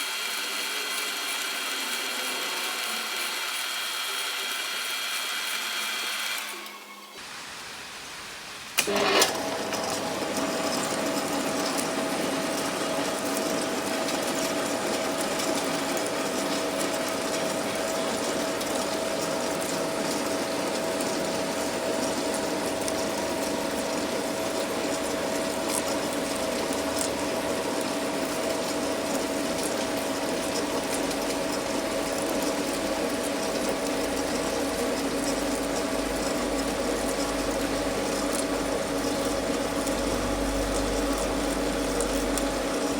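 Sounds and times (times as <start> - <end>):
metal lathe whining: 0.0 - 7.3, 8.8 - 42.9.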